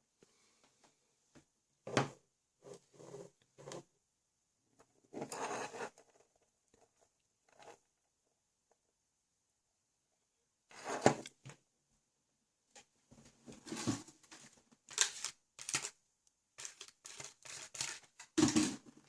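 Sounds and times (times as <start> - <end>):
plastic parts scraping: 13.6 - 16.0, 16.6 - 18.9.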